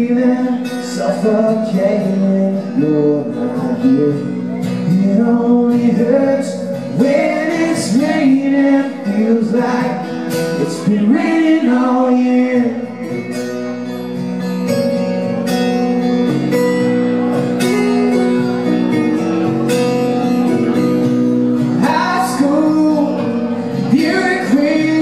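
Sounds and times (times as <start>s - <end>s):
man singing: 0.0s - 13.5s, 21.6s - 25.0s
acoustic guitars playing: 0.0s - 25.0s.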